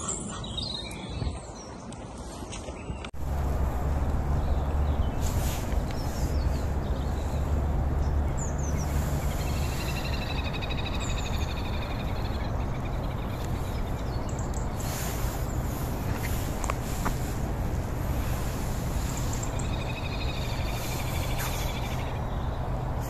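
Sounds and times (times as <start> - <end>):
low rumble: 3.1 - 23.0
bird rapid pulsed trill: 8.3 - 14.4.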